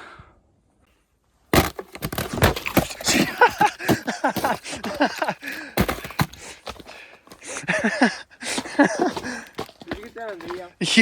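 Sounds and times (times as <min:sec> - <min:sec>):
people talking: 0:08.8 - 0:11.0.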